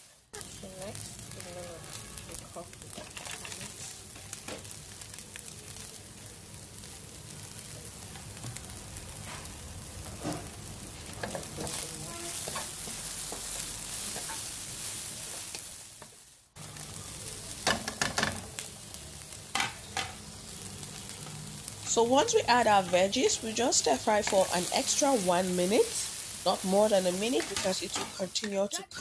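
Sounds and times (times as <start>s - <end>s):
meat and vegetables sizzling in oil: 0.0s - 29.0s
wooden spoon scraping a pan: 10.2s - 16.2s, 22.3s - 28.6s.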